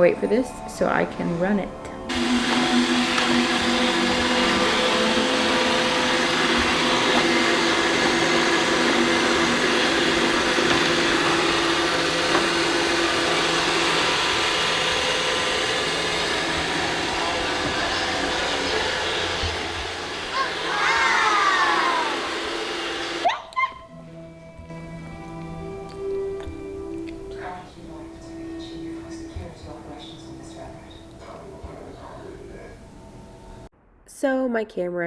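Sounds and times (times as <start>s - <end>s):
robot vacuum whirring: 2.1s - 23.2s.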